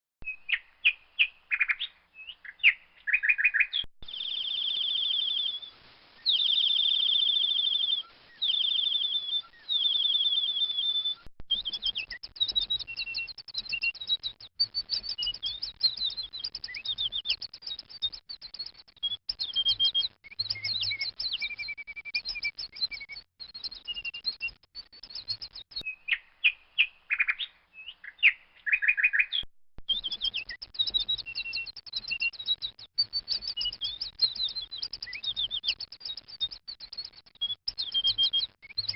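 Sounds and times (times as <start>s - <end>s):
baby bird chirping: 0.4s - 17.9s.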